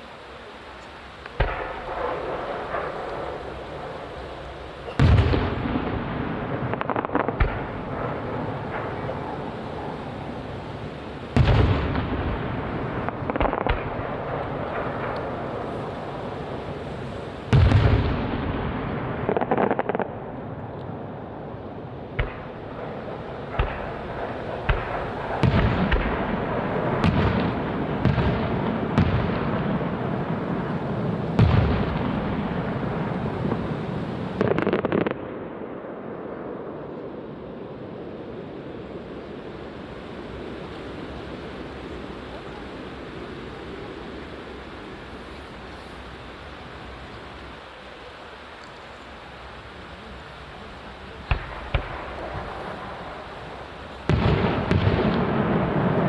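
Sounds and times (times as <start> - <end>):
firework crackle: 0.0 - 56.0
firework shells booming: 1.2 - 20.6, 22.0 - 35.7, 50.3 - 56.0.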